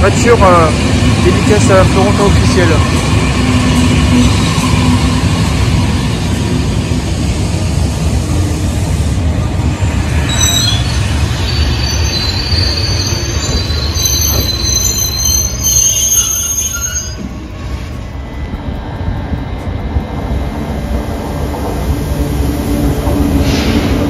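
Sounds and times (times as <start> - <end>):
train wheels rumbling on rail: 0.0 - 24.0
metallic brake squealing: 10.2 - 17.4.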